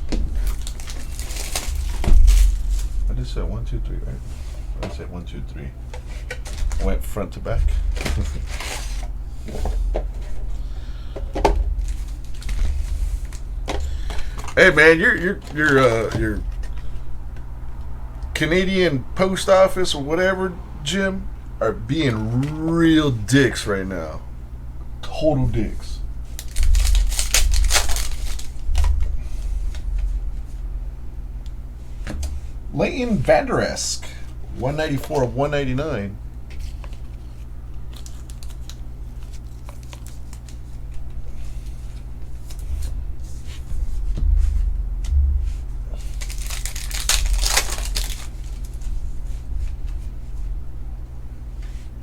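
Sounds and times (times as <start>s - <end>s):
card packs rustling: 0.0s - 3.1s, 5.8s - 17.1s, 21.7s - 23.6s, 25.6s - 30.1s, 34.3s - 35.7s, 36.4s - 44.1s, 45.8s - 50.1s
steady low hum: 0.0s - 52.0s
wrapper tearing and crinkling: 0.4s - 3.0s, 11.8s - 14.6s, 26.4s - 29.0s, 36.6s - 40.8s, 45.9s - 48.9s
dull bumps of cards: 39.2s - 50.2s.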